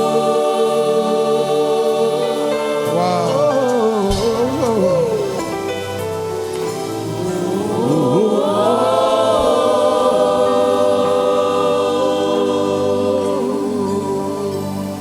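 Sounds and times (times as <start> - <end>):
choir singing: 0.0 - 15.0
keyboard backing: 0.0 - 15.0.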